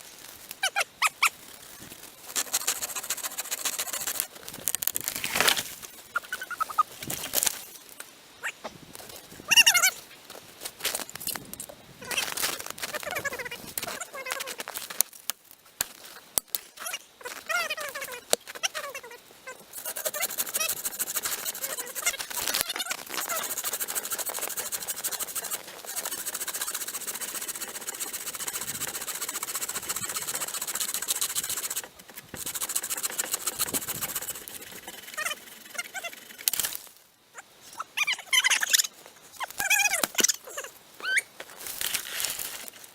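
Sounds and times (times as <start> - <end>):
hand saw rasping through wood: 2.3 - 4.2, 19.8 - 22.3, 23.1 - 36.6
short squeaky cries: 39.6 - 41.3.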